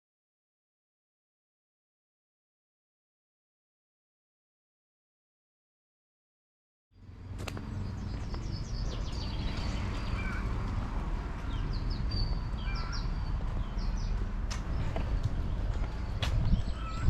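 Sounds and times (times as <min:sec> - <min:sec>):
steady low rumble: 0:07.2 - 0:17.0
small birds chirping: 0:07.4 - 0:17.0.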